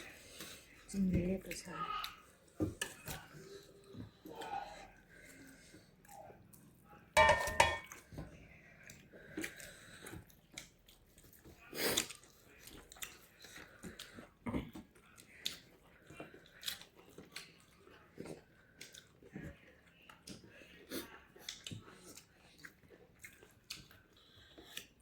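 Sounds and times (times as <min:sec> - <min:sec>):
person chewing and smacking: 0:08.8 - 0:25.0.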